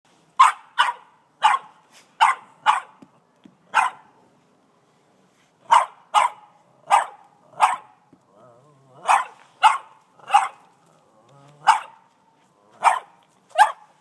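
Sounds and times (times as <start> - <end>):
dog barking in short barks: 0.4 - 3.0, 5.7 - 7.9, 9.0 - 10.6, 12.8 - 13.9.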